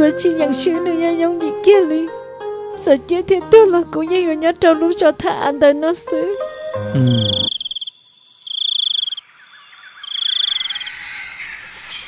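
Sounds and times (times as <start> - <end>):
cricket trilling: 6.8 - 11.1
faint bird chirps: 6.8 - 12.0.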